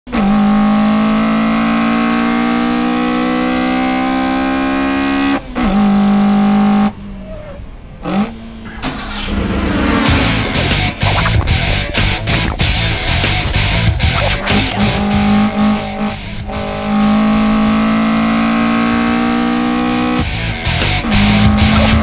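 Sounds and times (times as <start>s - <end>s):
car engine revving: 0.1s - 22.0s
rising noise: 7.9s - 22.0s.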